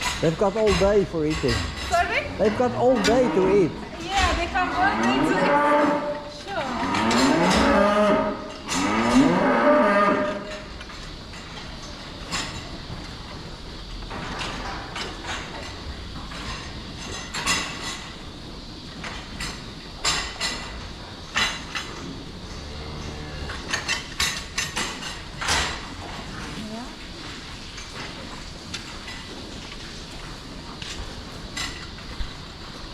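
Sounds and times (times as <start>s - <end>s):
cow mooing: 1.9s - 10.5s, 22.5s - 23.7s.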